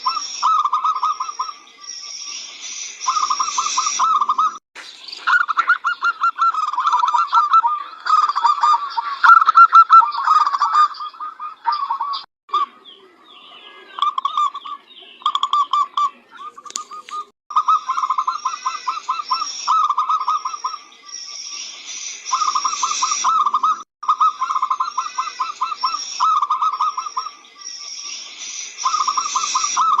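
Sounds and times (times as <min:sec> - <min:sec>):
high bird chirping: 0:00.0 - 0:30.0
dove cooing: 0:03.1 - 0:04.6, 0:05.3 - 0:20.9, 0:22.3 - 0:27.4, 0:28.8 - 0:30.0.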